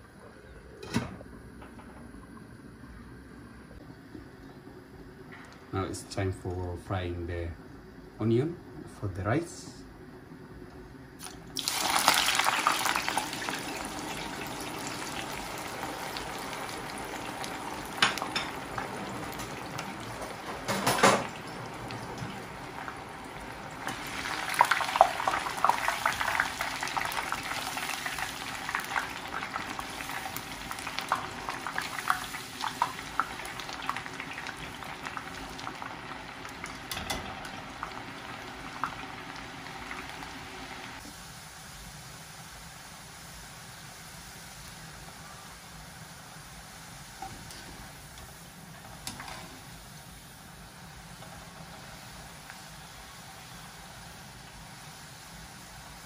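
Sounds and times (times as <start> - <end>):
onions sizzling in hot oil: 11.2 - 56.0.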